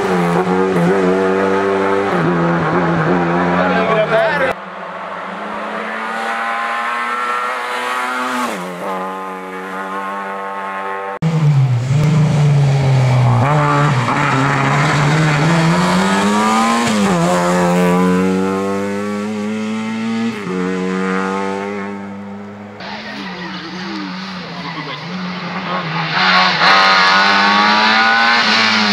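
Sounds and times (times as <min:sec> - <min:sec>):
rally car engine revving: 0:00.0 - 0:28.9.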